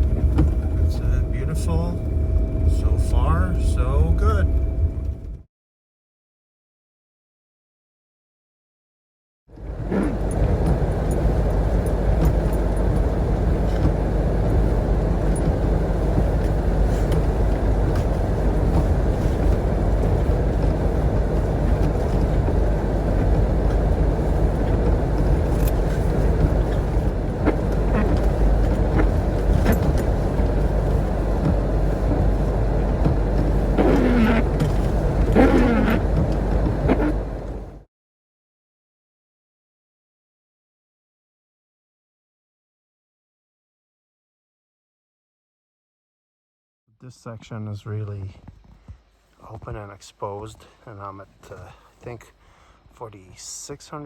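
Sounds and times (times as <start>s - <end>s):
vehicle engine and road rumble: 0.0s - 5.4s, 9.5s - 37.9s.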